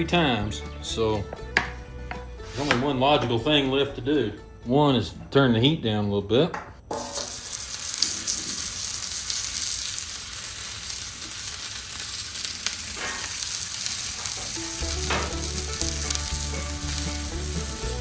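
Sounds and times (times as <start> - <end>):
food sizzling on griddle: 6.9 - 18.0.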